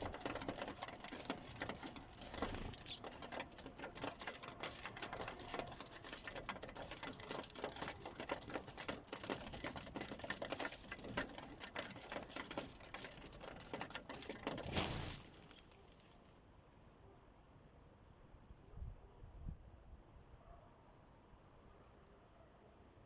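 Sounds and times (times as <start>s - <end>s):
beaks tapping on bird feeder: 0.0s - 14.7s.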